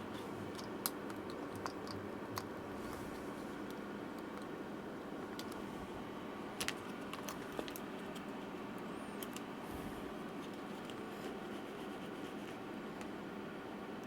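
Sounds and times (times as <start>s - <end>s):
steady low hum: 0.0s - 14.0s
tools clicking and tapping on laptop: 0.5s - 2.6s.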